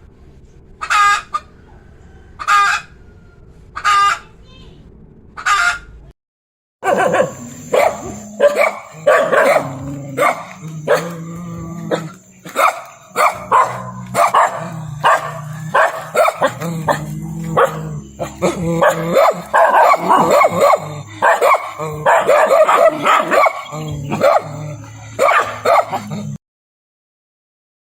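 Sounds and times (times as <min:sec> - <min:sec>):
dog barking: 0:06.8 - 0:26.4.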